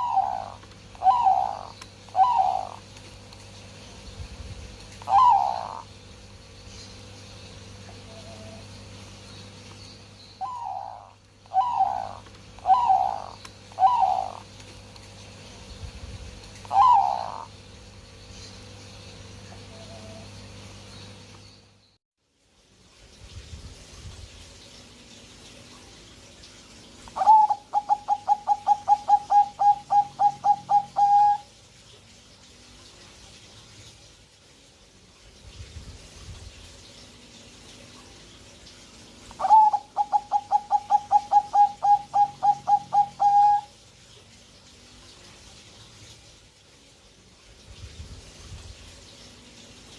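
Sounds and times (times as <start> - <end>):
dove cooing: 0.0 - 2.9, 5.0 - 5.9, 10.4 - 14.5, 16.6 - 17.5, 27.2 - 31.5, 39.4 - 43.7.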